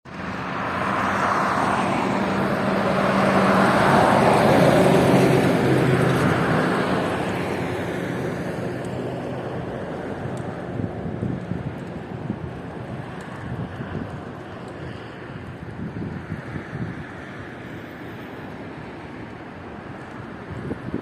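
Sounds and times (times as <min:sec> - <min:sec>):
vehicle passing by: 0:00.1 - 0:14.1.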